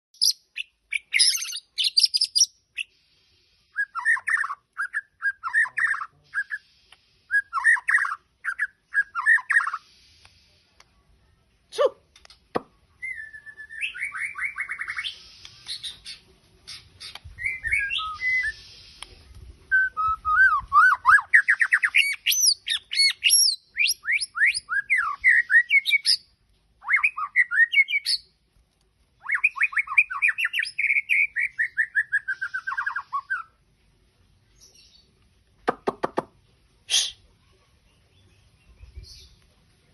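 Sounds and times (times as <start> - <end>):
songbird trills and whistles: 0.2 - 3.0, 3.7 - 9.8, 13.0 - 28.3, 29.2 - 33.5
short sharp bird calls: 36.9 - 37.6.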